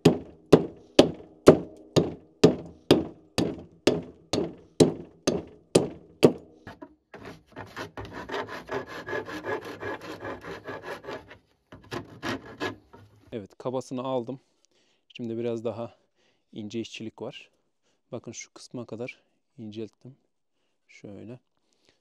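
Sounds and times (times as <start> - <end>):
tool striking wood board: 0.0 - 10.1, 11.0 - 13.1
rasping scrape across wood: 0.0 - 13.3.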